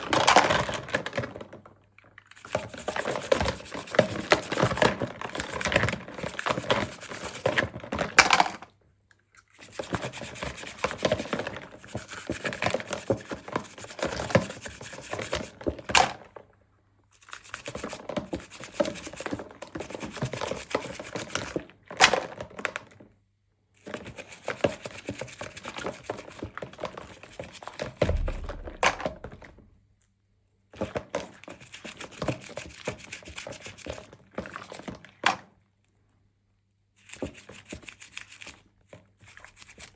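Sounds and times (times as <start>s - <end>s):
plastic packaging clicks and crinkles: 0.0s - 2.7s
dull thump: 28.0s - 29.7s.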